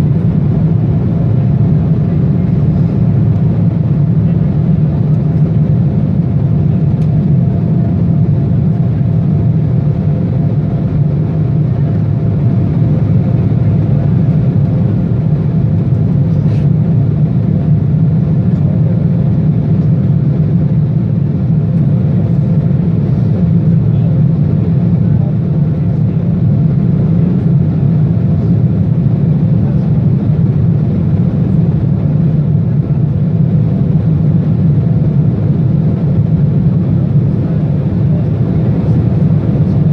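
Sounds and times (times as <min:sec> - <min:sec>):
jet engines roaring at takeoff: 0:00.0 - 0:39.9.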